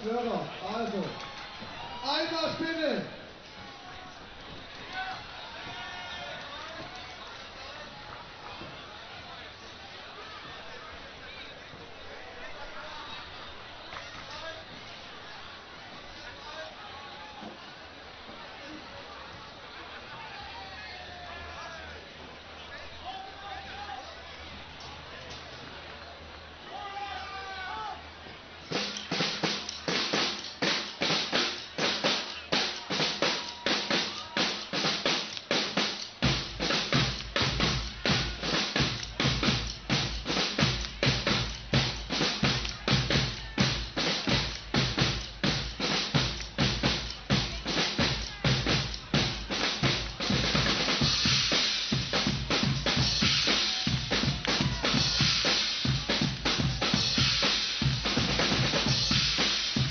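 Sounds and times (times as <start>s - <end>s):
bass drums: 28.7s - 59.9s
marching drum beat: 28.7s - 59.9s.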